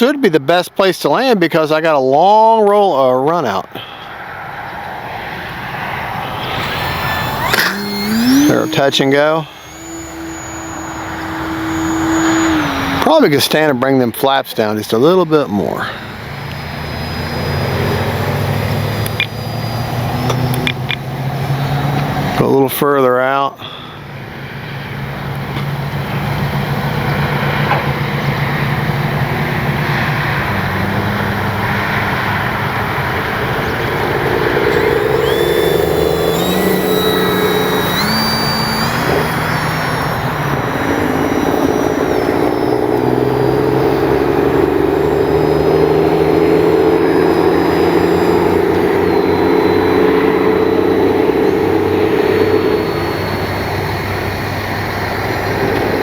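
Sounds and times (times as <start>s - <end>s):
electric motor and propeller: 4.9s - 13.8s, 14.9s - 22.6s, 25.5s - 56.0s
high whine climbing in steps: 5.2s - 13.9s, 14.6s - 22.4s, 32.6s - 56.0s.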